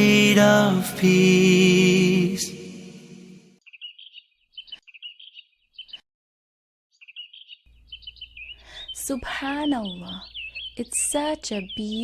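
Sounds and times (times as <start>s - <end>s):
small birds chirping: 3.6s - 6.1s, 6.9s - 12.0s.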